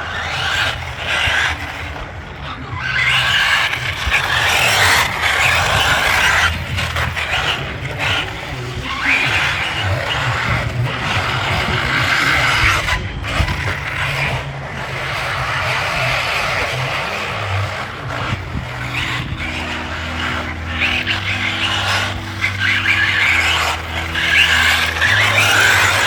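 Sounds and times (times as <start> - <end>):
toy car electric motor: 0.0 - 26.0
tyres scrabbling over ground: 0.0 - 26.0.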